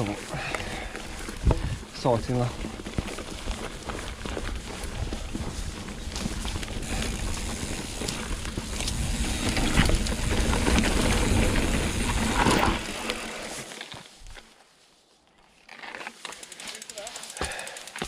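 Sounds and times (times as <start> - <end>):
bike rattling and clicking: 0.0 - 13.8, 15.7 - 18.0
bike tyres rolling on dirt: 0.0 - 18.0
wind buffeting microphone: 1.2 - 1.9, 2.8 - 12.2.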